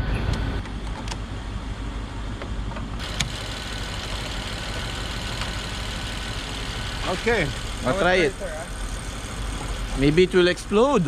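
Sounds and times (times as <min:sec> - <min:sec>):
car engine idling: 0:03.0 - 0:11.0.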